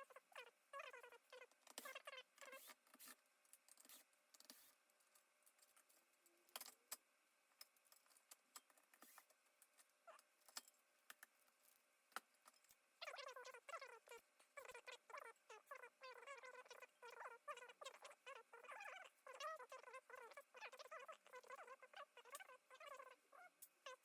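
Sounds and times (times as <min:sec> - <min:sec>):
squeaky chirps: 0:00.0 - 0:02.8, 0:13.0 - 0:24.0.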